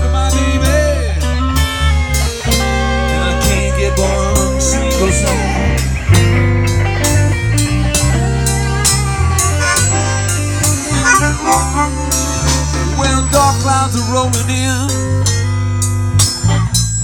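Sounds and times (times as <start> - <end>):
bass guitar: 0.0 - 17.0
drums keeping steady beat: 0.0 - 17.0
electric guitar bending notes: 0.0 - 17.0.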